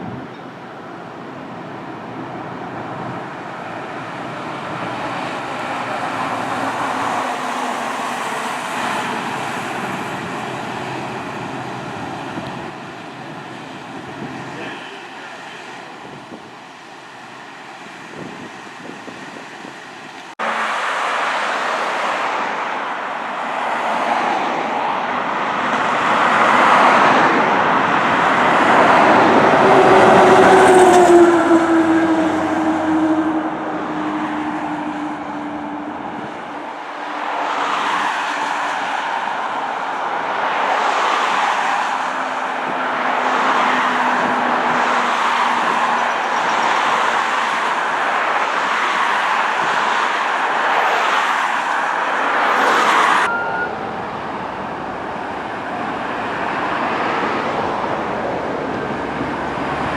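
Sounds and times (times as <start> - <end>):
fire truck engine and road noise: 0.0 - 59.9
low tone sliding downward: 53.2 - 55.2.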